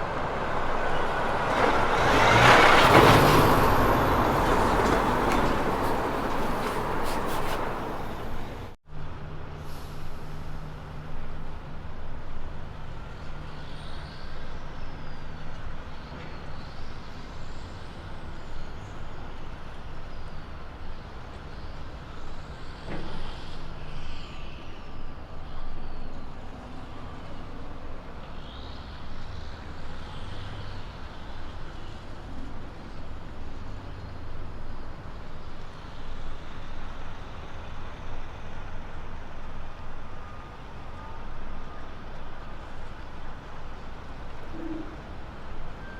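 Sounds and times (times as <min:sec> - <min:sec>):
distant truck engine running: 0:00.0 - 0:08.8
truck passing by: 0:00.0 - 0:08.8.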